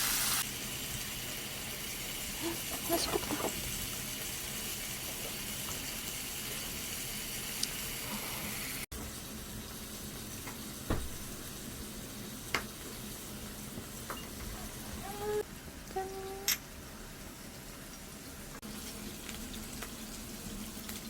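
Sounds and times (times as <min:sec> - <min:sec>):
meat sizzling on a grill: 0:00.0 - 0:21.0.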